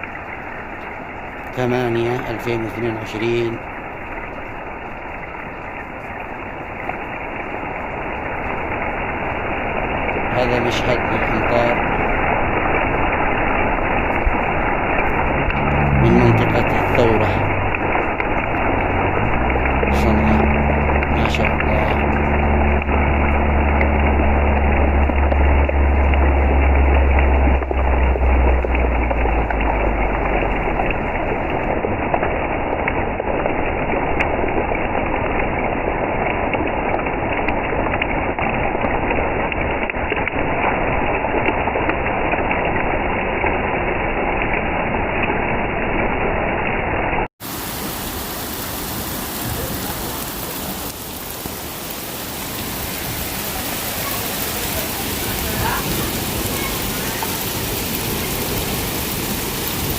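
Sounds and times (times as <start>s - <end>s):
heavy rain falling: 0.0s - 59.9s
low rumble: 7.8s - 41.1s.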